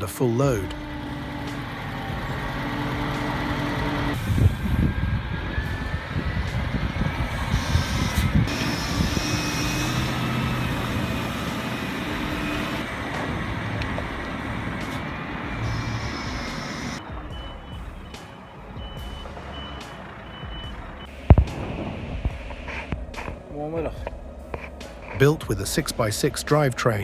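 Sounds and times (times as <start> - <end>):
rough noise: 0.0 - 27.0
truck diesel engine running: 0.0 - 27.0.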